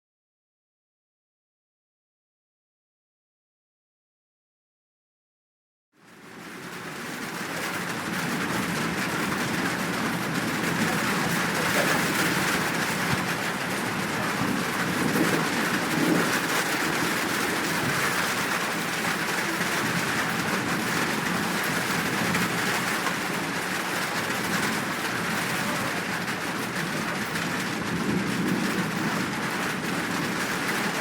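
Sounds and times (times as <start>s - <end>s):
steady rain falling: 6.0s - 31.0s.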